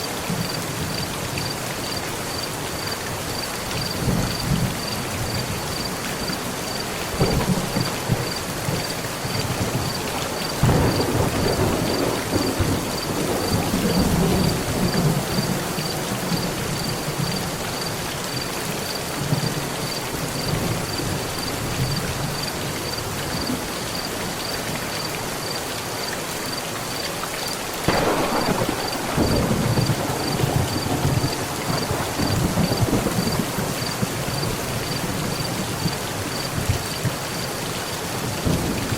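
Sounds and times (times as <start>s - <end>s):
heavy rain on a metal roof: 0.0s - 38.9s
rolling thunder: 7.1s - 17.6s, 27.9s - 36.8s.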